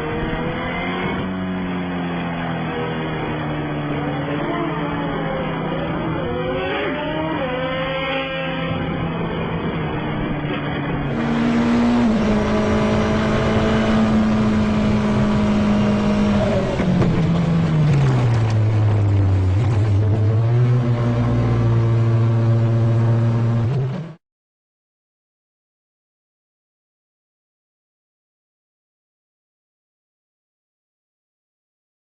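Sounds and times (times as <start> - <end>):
racing engines at high revs: 0.0 - 24.2.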